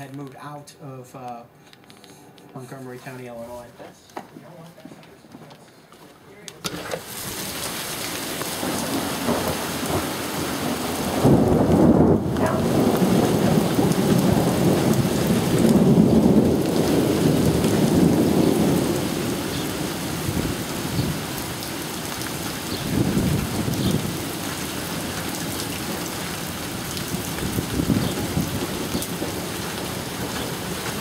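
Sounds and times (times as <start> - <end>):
heavy rain falling: 6.7 - 31.0
low rumble of thunder: 8.4 - 31.0.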